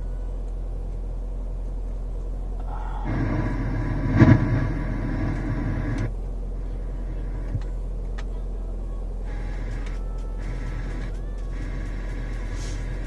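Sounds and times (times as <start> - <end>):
car engine idling: 0.0 - 13.0
car radio broadcast: 0.0 - 13.0
faint clicks: 1.7 - 6.1, 9.3 - 13.0.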